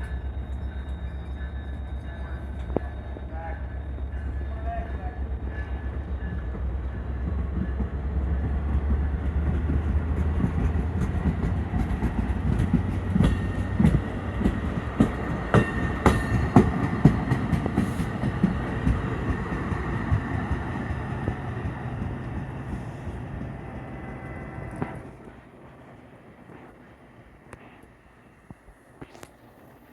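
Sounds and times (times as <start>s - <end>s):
high squeal: 0.0s - 6.4s
train passing rumble: 0.0s - 29.9s.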